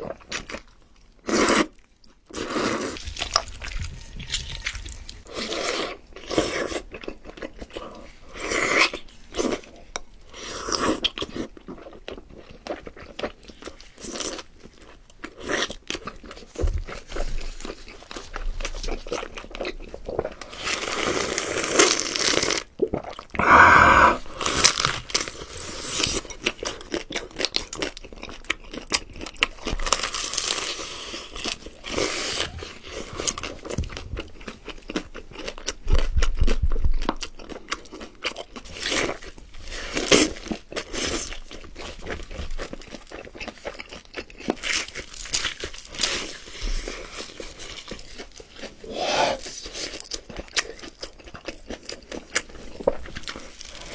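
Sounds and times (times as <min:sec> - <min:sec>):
person crunching crisp food: 0:00.0 - 0:53.9.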